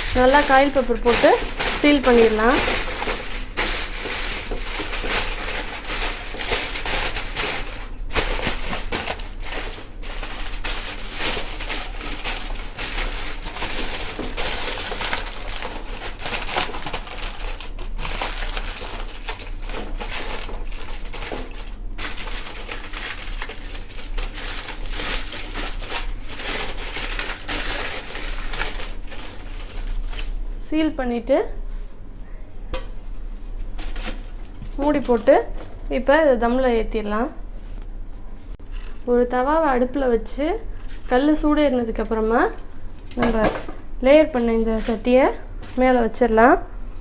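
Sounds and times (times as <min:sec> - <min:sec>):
aluminium foil crinkling: 0:00.0 - 0:30.4, 0:33.6 - 0:35.7, 0:44.2 - 0:46.6.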